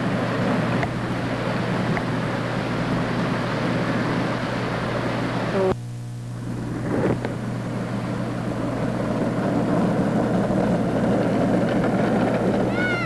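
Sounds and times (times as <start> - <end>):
small motorcycle engines running: 6.5 - 13.0.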